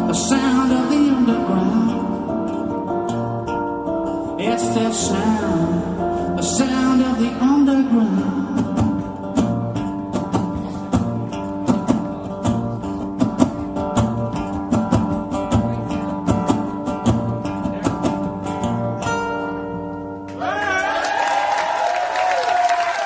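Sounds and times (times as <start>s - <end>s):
acoustic guitar strumming: 0.0s - 20.4s
audience cheering and applauding: 20.3s - 23.0s.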